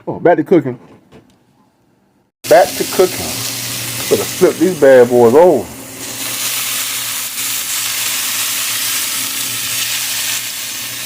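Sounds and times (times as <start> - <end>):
sausage sizzling in a pan: 2.4 - 11.0.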